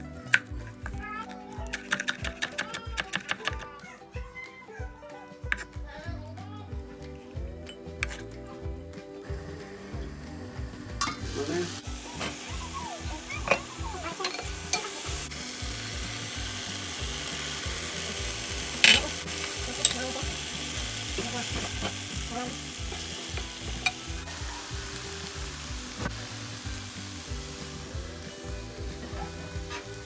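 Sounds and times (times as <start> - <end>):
vegetables sizzling in a pot: 9.1 - 30.0.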